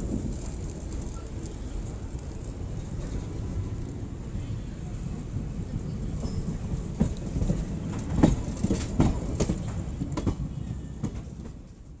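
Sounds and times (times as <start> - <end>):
train low rumble: 0.0 - 12.0
wheels clacking over rail joints: 6.0 - 11.8.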